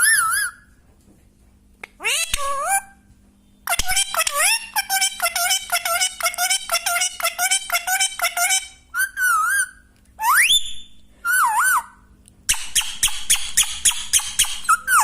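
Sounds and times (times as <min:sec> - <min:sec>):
parrot chirping: 0:00.0 - 0:00.7, 0:02.0 - 0:03.0, 0:03.6 - 0:15.0
parrot warbling whistles: 0:09.0 - 0:12.0.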